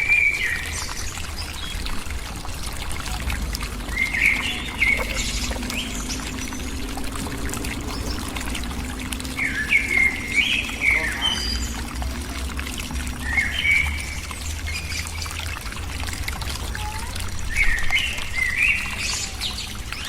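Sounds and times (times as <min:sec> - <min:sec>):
bird chirping call: 0:03.8 - 0:11.8.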